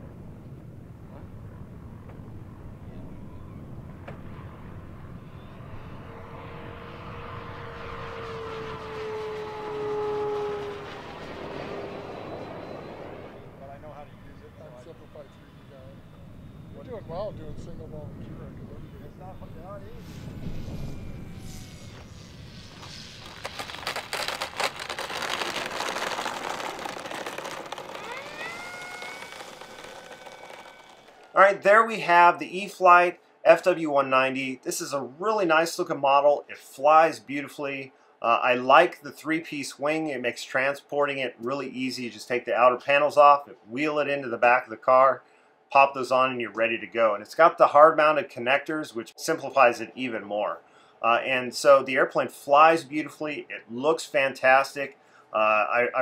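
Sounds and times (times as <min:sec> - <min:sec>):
wind rumble: 0:00.0 - 0:31.7
model plane motor whining: 0:08.2 - 0:13.6, 0:20.2 - 0:31.4
rush of noise with clicks: 0:21.9 - 0:31.3.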